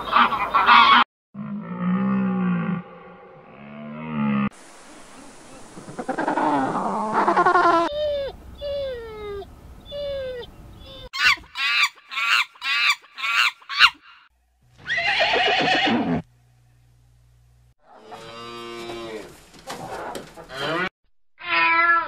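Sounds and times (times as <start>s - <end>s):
short falling animal calls: 5.6s - 7.9s
animal braying: 5.8s - 9.3s, 17.9s - 20.9s
sharp high animal calls: 6.0s - 14.2s, 14.8s - 16.0s
horse whinnying: 14.8s - 16.3s.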